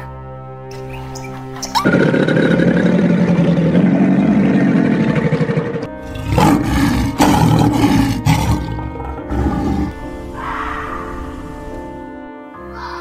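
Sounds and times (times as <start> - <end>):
crocodile growl: 1.8 - 11.2
lion growling and roaring: 1.8 - 11.6.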